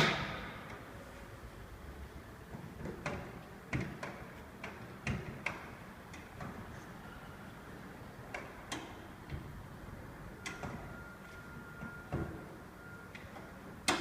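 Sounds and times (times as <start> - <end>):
faint steady high tone: 7.0 - 7.6, 10.2 - 13.6.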